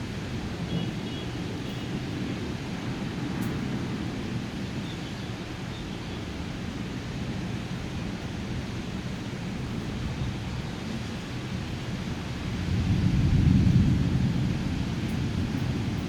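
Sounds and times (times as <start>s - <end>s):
heavy rain pouring: 11.5s - 16.0s
low thunder rumble: 12.5s - 16.0s.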